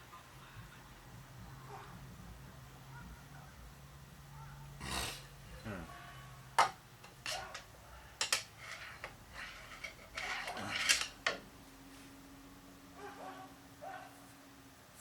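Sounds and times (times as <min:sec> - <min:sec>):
faint steady hum: 0:00.0 - 0:15.0
metal scraping: 0:08.2 - 0:11.4
metal tools clinking: 0:08.2 - 0:11.4.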